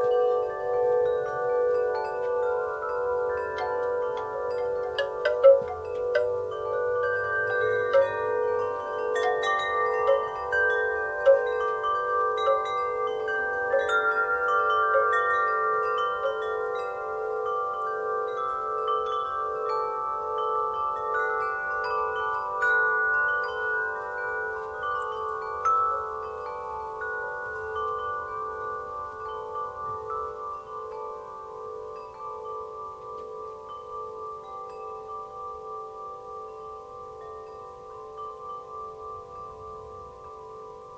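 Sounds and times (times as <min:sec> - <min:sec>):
wind chimes ringing: 0:00.0 - 0:40.9.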